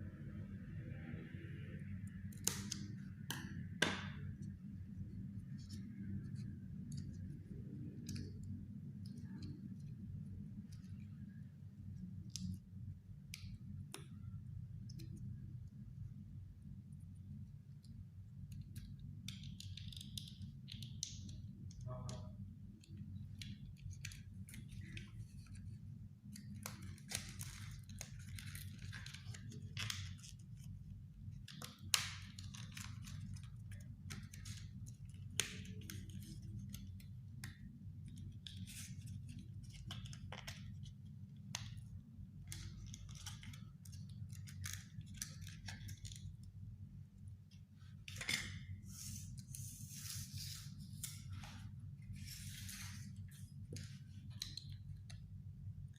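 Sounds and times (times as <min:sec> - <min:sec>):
paper rustling: 0:48.8 - 0:54.6.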